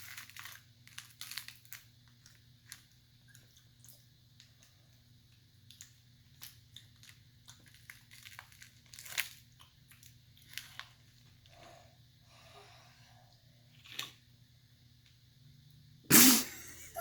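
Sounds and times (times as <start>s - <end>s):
crunching crispy wafer: 0.0s - 3.5s, 5.7s - 11.6s.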